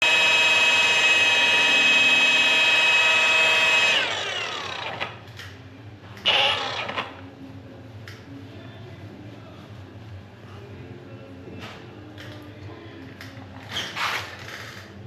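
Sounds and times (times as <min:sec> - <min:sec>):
electric polisher whining: 0:00.0 - 0:05.2, 0:06.2 - 0:07.1.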